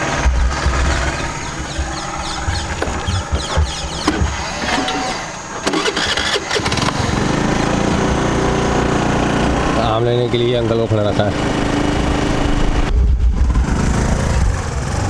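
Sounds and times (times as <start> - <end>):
sharp clicks: 0.0 - 7.4
scooter engine running: 0.0 - 15.0
wind buffeting microphone: 0.0 - 15.0.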